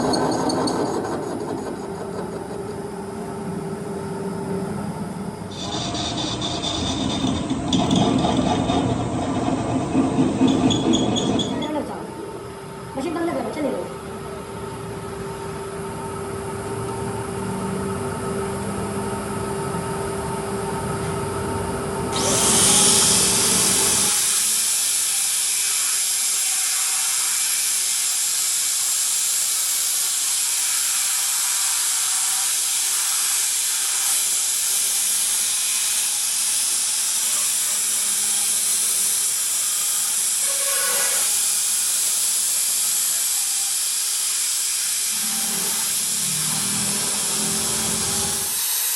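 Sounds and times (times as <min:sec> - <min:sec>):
low machine hum: 0:01.4 - 0:22.3.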